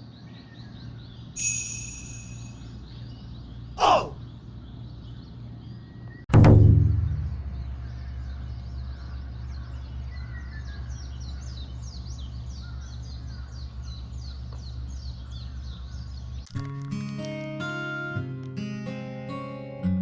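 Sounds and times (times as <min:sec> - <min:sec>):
birds chirping: 0:01.4 - 0:02.6, 0:03.4 - 0:05.3.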